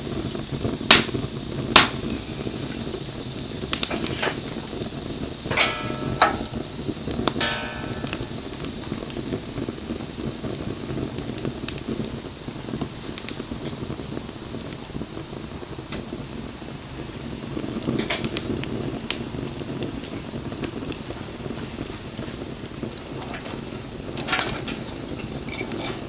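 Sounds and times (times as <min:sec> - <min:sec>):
bonfire flames rushing: 0:00.0 - 0:26.0
burning wood popping and crackling: 0:00.0 - 0:26.0.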